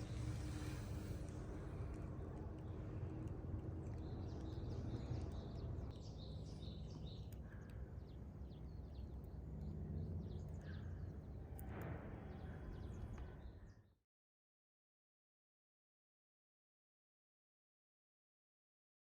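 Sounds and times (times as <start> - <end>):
low outdoor background noise: 0.0 - 13.8.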